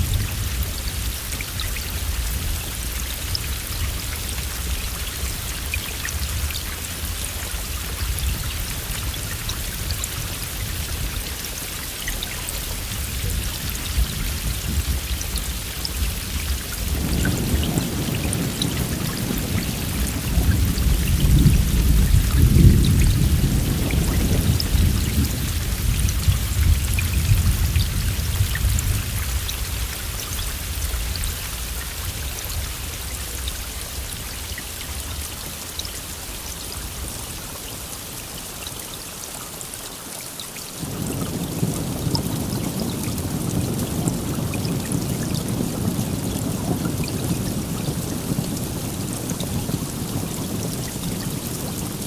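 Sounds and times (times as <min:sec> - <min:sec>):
heavy rain: 0:00.0 - 0:52.0
thunder rolling: 0:12.7 - 0:30.1, 0:40.8 - 0:52.0.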